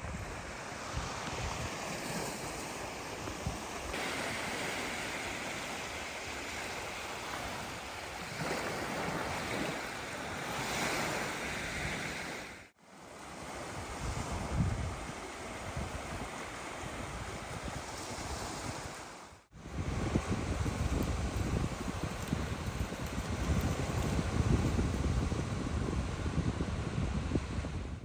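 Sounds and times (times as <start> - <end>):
wind rushing: 19.6 - 28.0.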